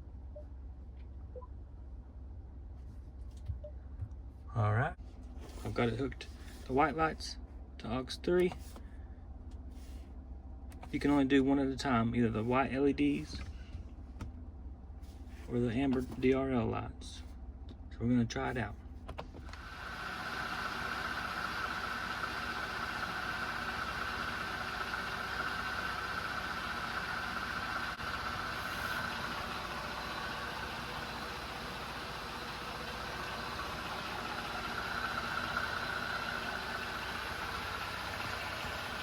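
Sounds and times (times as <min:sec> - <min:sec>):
engine idling: 0:18.8 - 0:39.0.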